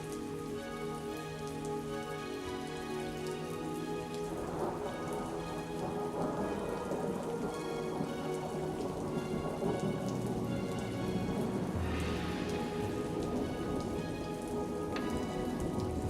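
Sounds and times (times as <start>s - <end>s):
soft music with held notes: 0.0s - 16.0s
steady rain: 0.0s - 16.0s
thunder rumbling: 4.4s - 16.0s.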